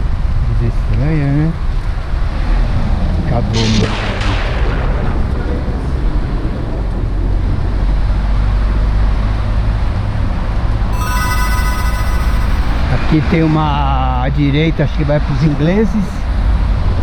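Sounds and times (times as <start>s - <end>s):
steady high tones: 11.0s - 12.9s.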